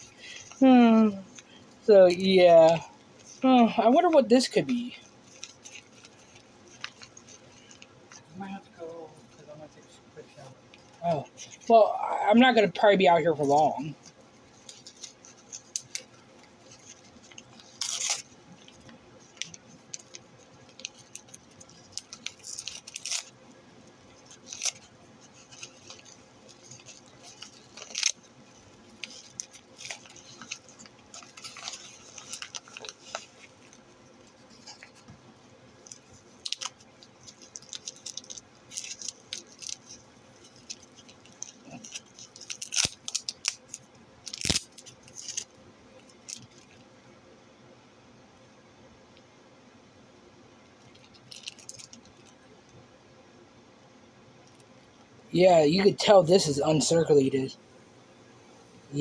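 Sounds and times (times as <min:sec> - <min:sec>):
packaging crinkling and rustling: 0:00.0 - 0:11.8, 0:12.5 - 0:46.9, 0:50.8 - 0:52.4.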